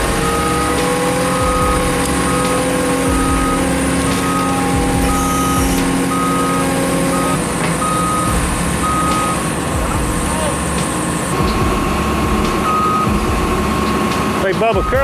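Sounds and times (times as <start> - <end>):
machine engine running: 0.0 - 15.0
reversing alarm beeps: 0.0 - 15.0.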